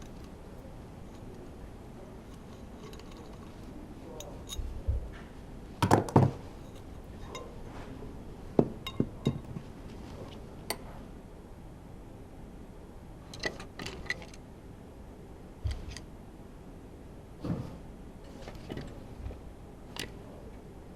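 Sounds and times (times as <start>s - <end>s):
metal tools knocking and clinking: 2.2s - 4.8s, 5.8s - 7.6s, 8.6s - 9.7s.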